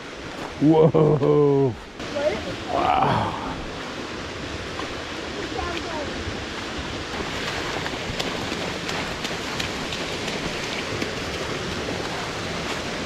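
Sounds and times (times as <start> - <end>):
water drips and spatters: 4.7 - 13.0
waterfall rushing onto rock: 4.8 - 13.0.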